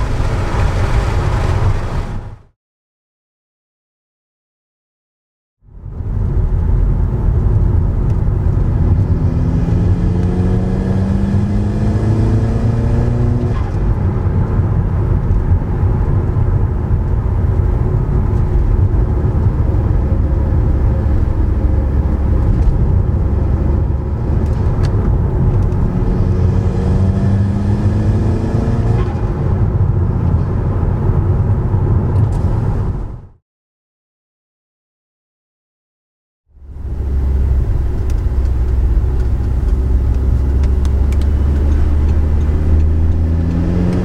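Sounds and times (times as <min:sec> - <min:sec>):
car engine under load: 0:00.0 - 0:02.5, 0:05.8 - 0:33.4, 0:36.6 - 0:44.0
steady low rumble: 0:05.7 - 0:09.5, 0:13.8 - 0:26.6, 0:36.5 - 0:43.6.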